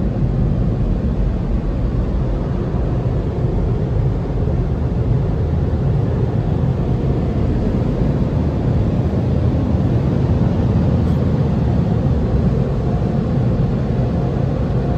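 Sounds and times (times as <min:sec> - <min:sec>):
car interior rumble: 0:04.3 - 0:14.9.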